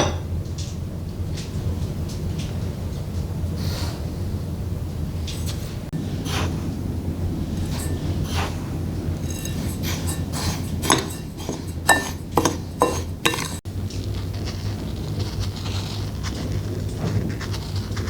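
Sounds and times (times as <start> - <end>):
kitchenware clinking and knocking: 0.0 - 0.3, 5.3 - 6.7, 7.3 - 13.6
steady low hum: 3.1 - 13.9.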